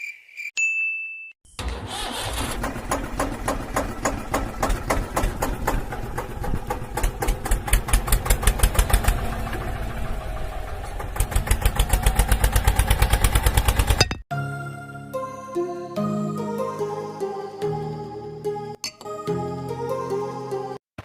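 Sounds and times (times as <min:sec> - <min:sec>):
small engine chugging: 0:01.6 - 0:14.0.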